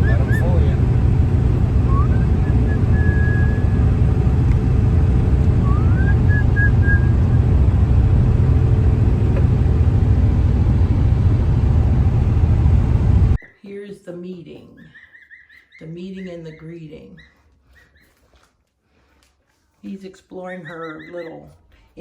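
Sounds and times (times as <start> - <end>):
car road and engine rumble: 0.0 - 13.4
rising whistle-like tone: 1.8 - 3.8, 5.6 - 7.4.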